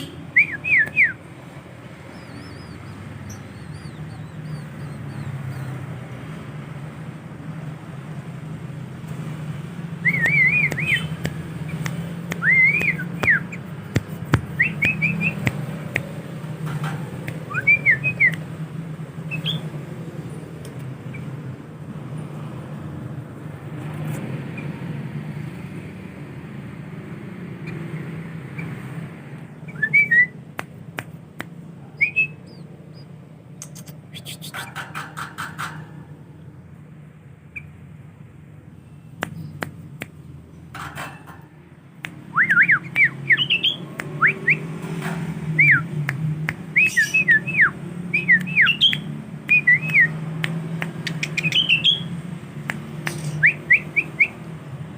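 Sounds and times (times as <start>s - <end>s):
bird whistling song: 0.0s - 1.2s, 2.0s - 5.8s, 10.0s - 13.6s, 14.5s - 15.5s, 17.4s - 18.4s, 19.3s - 19.7s, 29.5s - 30.4s, 32.0s - 34.7s, 42.3s - 44.7s, 45.6s - 45.9s, 46.7s - 50.2s, 51.0s - 52.2s, 53.0s - 54.5s.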